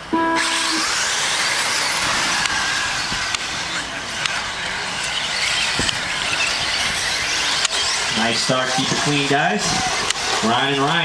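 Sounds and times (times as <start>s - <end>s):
rc truck motors whining: 0.0s - 11.0s
tyre and dirt noise: 0.4s - 11.0s
sharp impact clicks: 5.4s - 8.0s.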